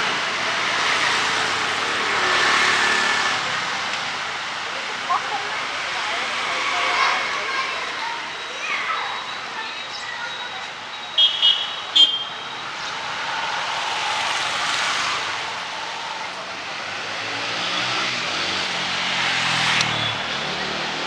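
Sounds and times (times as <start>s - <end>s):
tyres hissing on wet road: 0.0s - 8.6s, 12.4s - 21.0s
vehicle engine: 12.4s - 21.0s.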